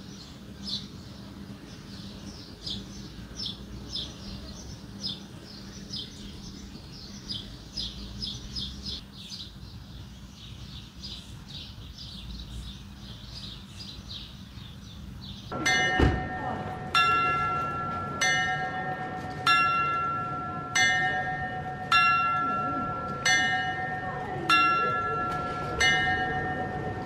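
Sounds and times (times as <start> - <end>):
small birds chirping: 0.0 - 15.6
loud bell strike: 15.5 - 27.0.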